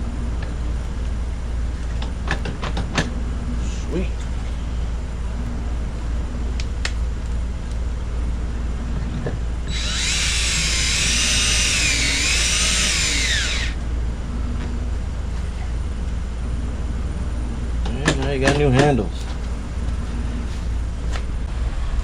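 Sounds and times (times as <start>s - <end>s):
low hum: 0.0s - 17.9s, 19.1s - 22.0s
power drill whining: 9.7s - 13.8s.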